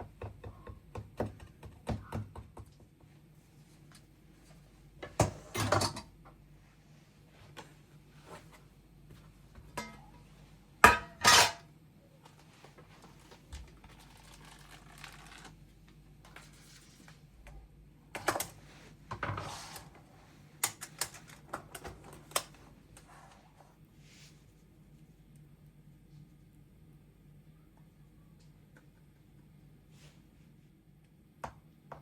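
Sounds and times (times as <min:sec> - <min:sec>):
faint steady hum: 0:00.0 - 0:32.0
dishes and cutlery clinking: 0:10.8 - 0:11.7.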